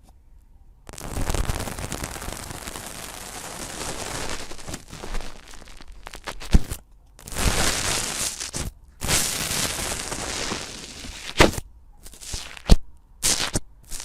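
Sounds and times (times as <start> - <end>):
sharp loud pop: 10.9 - 11.6.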